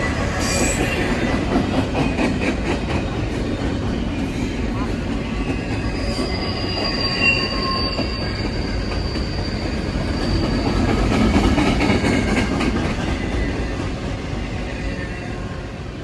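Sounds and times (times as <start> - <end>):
train cars rumbling past: 0.0 - 16.0
high-pitched wheel squeal: 5.4 - 10.7.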